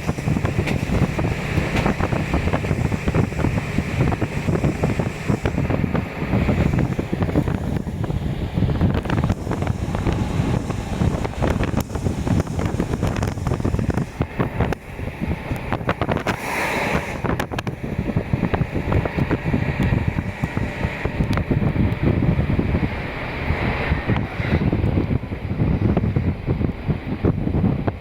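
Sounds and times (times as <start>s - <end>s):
train engine rumble: 0.0s - 28.0s
wheels clattering on track: 0.0s - 28.0s
brief hiss: 16.2s - 17.3s.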